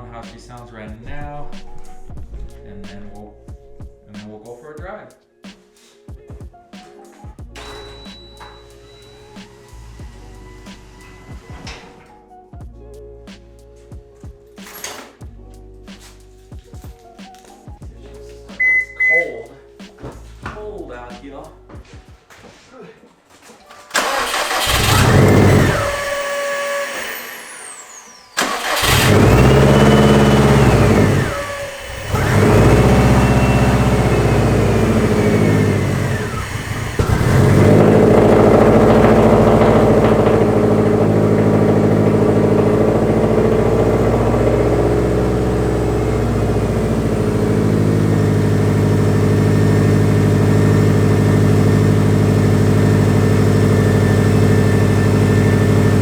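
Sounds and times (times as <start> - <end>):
car engine cold-starting and idling: 1.0 - 4.1, 7.6 - 12.2, 23.9 - 56.0.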